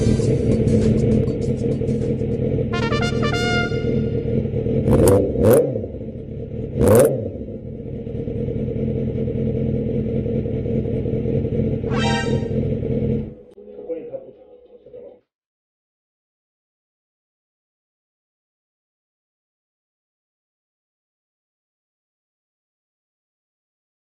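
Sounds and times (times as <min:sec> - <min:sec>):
vehicle running: 0:00.0 - 0:14.1
background music: 0:02.7 - 0:04.2
loud short rushes: 0:11.8 - 0:12.8.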